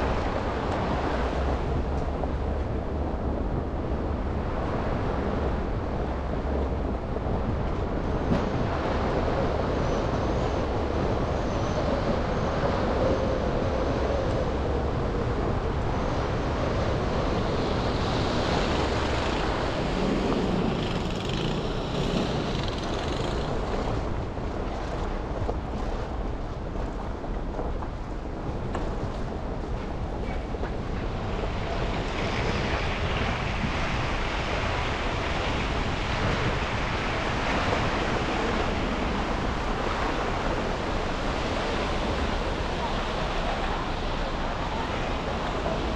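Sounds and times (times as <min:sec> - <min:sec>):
car driving traffic noise: 0:16.4 - 0:23.9.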